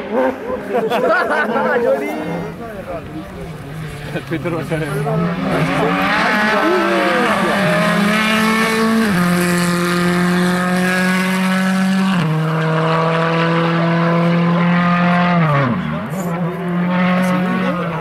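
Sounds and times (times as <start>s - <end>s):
rally car engine at high revs: 3.2s - 18.0s.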